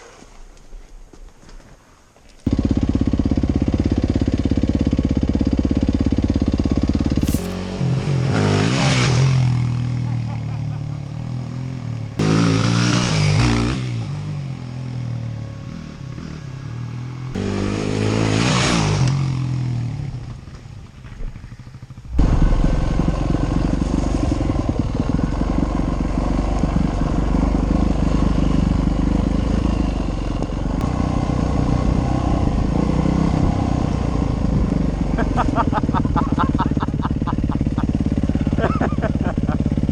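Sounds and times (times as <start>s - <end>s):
dirt bike engine revving: 6.8s - 10.0s, 15.7s - 19.8s.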